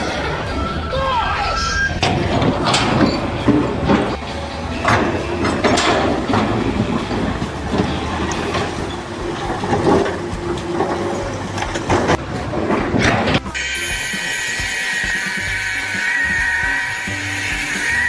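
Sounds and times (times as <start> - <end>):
heavy mechanical rumble: 0.0 - 18.0
clanks and knocks: 2.0 - 13.6.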